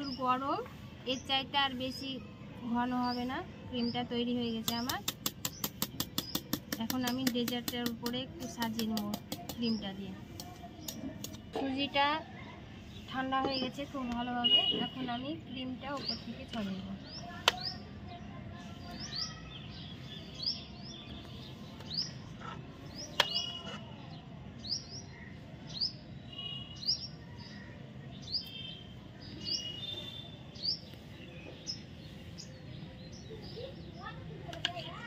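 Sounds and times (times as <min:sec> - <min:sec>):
faint background noise: 0:00.0 - 0:35.0
bird chirping: 0:12.9 - 0:34.2.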